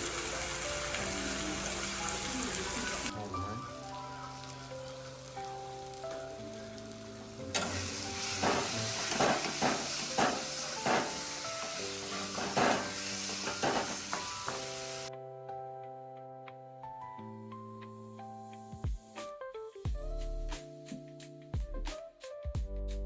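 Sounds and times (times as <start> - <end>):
gizzards sizzling in frying: 0.0 - 15.1
background music: 0.0 - 23.0.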